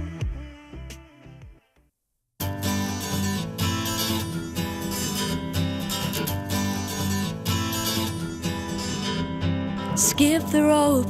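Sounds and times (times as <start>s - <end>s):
strummed acoustic guitar: 2.4s - 11.0s.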